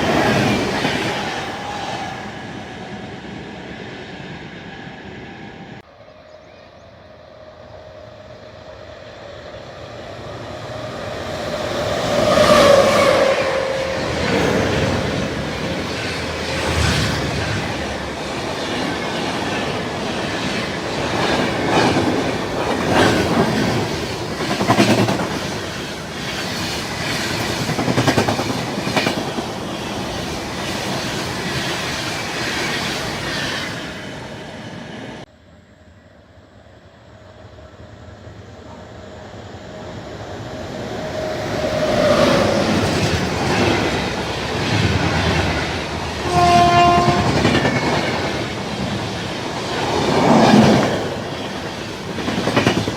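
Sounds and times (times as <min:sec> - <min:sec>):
train approaching: 0:00.0 - 0:52.9
train passing at speed: 0:00.0 - 0:52.9
train wheels clicking over rail joints: 0:14.1 - 0:33.0
train horn blast: 0:46.2 - 0:47.6.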